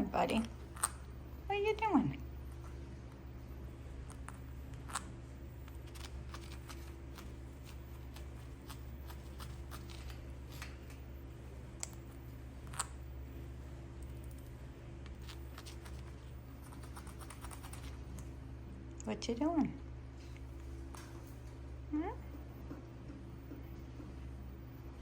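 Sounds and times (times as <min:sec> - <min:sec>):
parrot beak clicks and scratches: 0:04.0 - 0:11.0, 0:11.8 - 0:13.0, 0:14.0 - 0:18.3.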